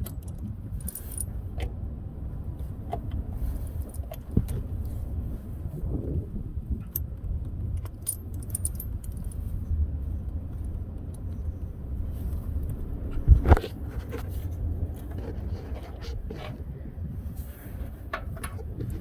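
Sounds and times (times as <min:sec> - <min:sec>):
steady low rumble: 0:00.0 - 0:19.0
metal tools clinking: 0:00.8 - 0:01.3, 0:08.0 - 0:09.4.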